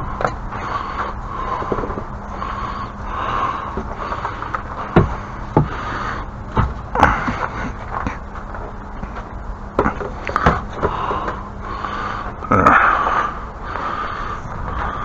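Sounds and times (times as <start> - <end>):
steady background noise: 0.0 - 15.0
sharp knocks and thuds: 4.9 - 5.8, 6.5 - 8.2.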